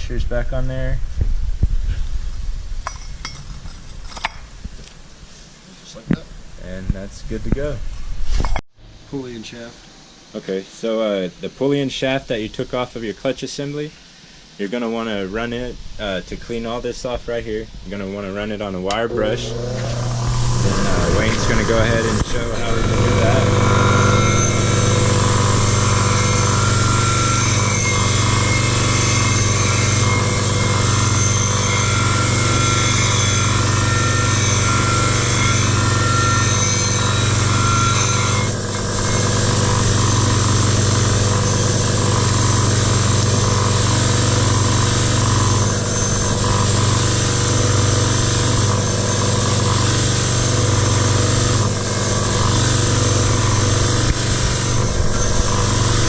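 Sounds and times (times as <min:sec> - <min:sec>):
motor hum: 0:18.8 - 0:56.0
electric wire brush wheel scrubbing: 0:18.9 - 0:56.0.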